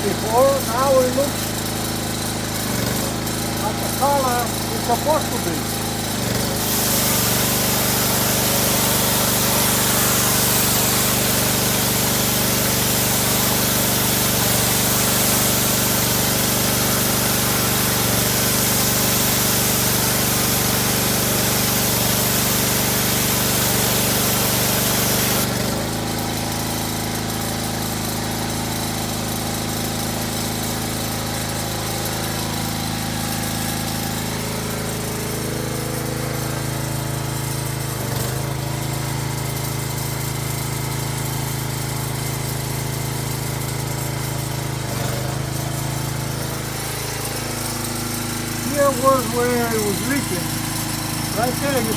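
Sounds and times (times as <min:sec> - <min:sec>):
pressure washer engine running: 0:00.0 - 0:51.9
water spray hissing: 0:03.5 - 0:25.6, 0:46.4 - 0:51.9.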